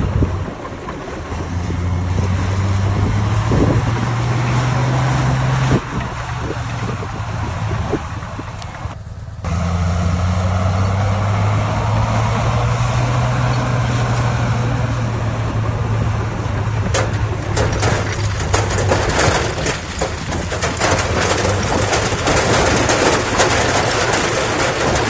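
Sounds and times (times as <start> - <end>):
heavy diesel engine running: 0.0 - 25.0
sharp clicks and knocks: 16.5 - 25.0.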